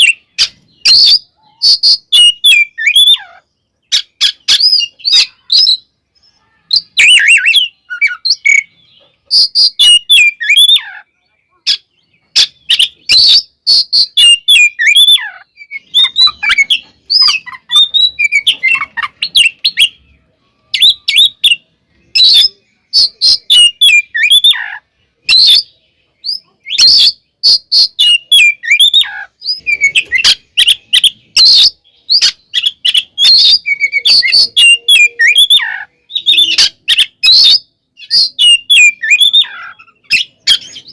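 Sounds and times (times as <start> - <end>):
bird singing varied whistles: 25.3 - 40.9.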